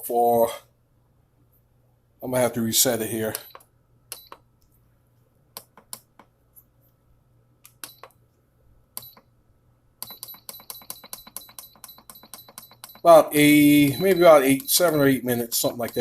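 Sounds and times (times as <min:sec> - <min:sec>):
control panel beeping: 0:03.3 - 0:04.4, 0:07.7 - 0:08.2, 0:09.0 - 0:09.3, 0:10.0 - 0:16.0.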